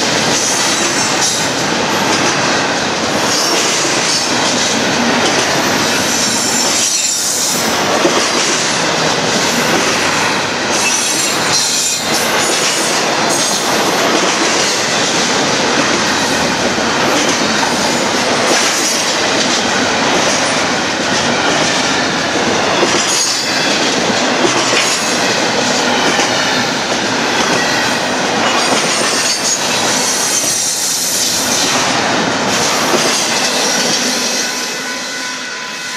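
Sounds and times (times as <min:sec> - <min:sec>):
train wheels rumbling on rails: 0:00.0 - 0:35.9.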